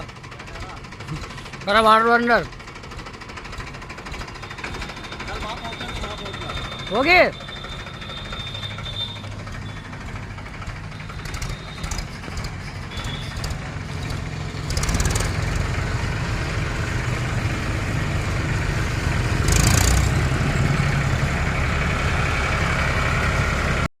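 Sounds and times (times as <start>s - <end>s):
tractor engine running: 0.0s - 23.9s.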